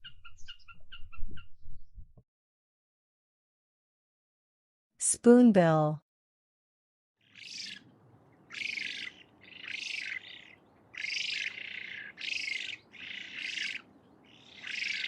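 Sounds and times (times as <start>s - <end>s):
spoonbill harsh hoarse calls: 7.2s - 7.8s, 8.4s - 15.0s.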